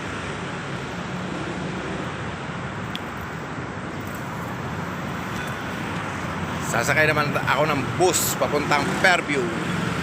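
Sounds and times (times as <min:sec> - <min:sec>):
road traffic passing: 0:00.0 - 0:10.0.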